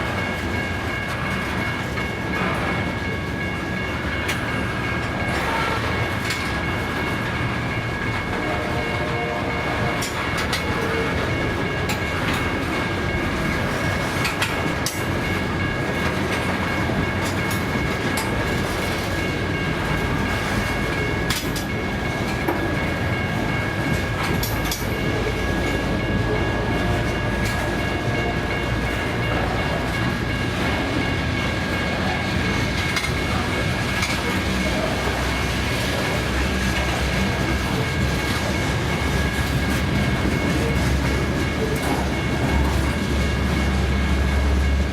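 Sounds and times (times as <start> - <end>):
steel wheels rumbling on rail: 0.0 - 44.9
wheels clicking over rail joints: 9.9 - 44.4.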